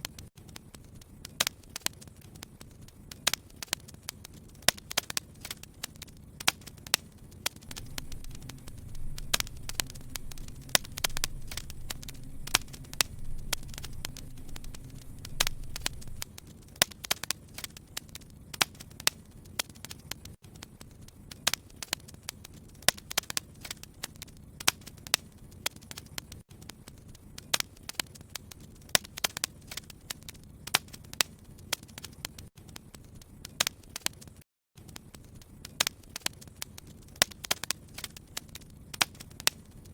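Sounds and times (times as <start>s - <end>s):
low rumble of flames: 0.0s - 39.9s
wood fire crackling: 0.0s - 39.9s.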